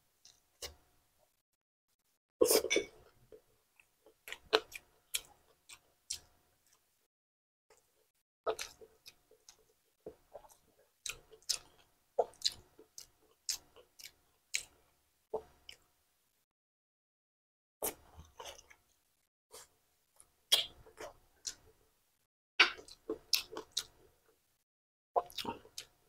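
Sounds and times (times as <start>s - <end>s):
close chewing with mouth smacks: 3.8s - 6.8s, 8.5s - 14.8s, 22.7s - 24.0s, 25.2s - 26.0s.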